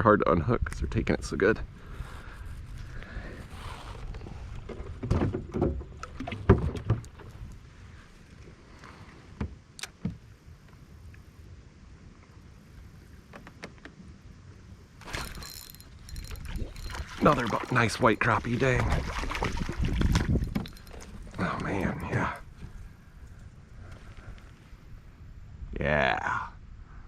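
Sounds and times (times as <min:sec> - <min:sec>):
wind rumble on microphone: 0:00.0 - 0:27.0
knocks and thumps inside a kayak: 0:04.2 - 0:07.5, 0:09.3 - 0:10.3, 0:15.0 - 0:22.8.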